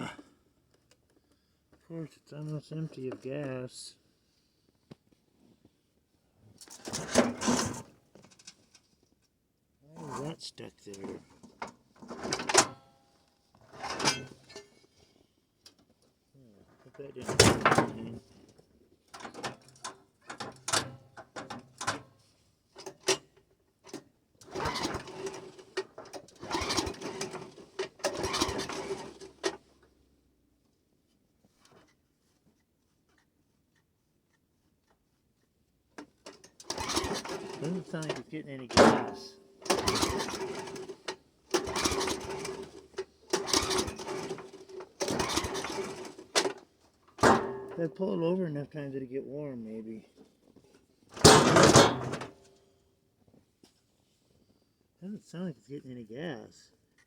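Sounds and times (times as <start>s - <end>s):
snowblower engine cranking: 24.4s - 29.6s, 36.3s - 48.1s, 51.2s - 52.4s.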